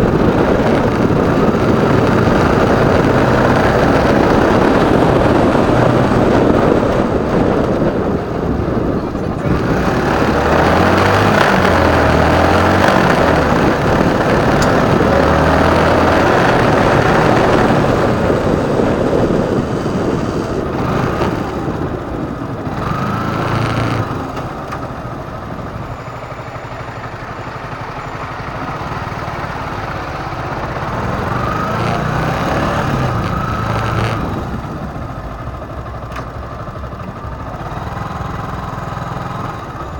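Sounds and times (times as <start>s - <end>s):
wind rushing: 0.0s - 26.0s
motorcycle engine running: 0.0s - 39.9s
traffic noise: 0.0s - 39.9s.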